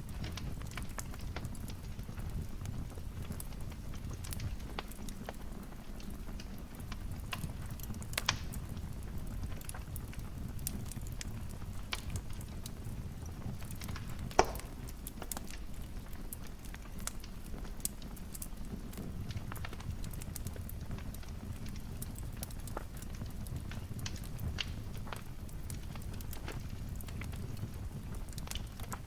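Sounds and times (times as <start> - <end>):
fire crackling in fireplace: 0.0 - 29.0
loud fire pop: 14.3 - 14.8.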